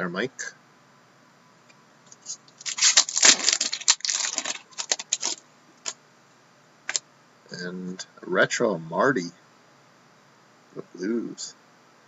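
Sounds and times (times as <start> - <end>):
card wrapper crinkling: 2.1 - 6.0.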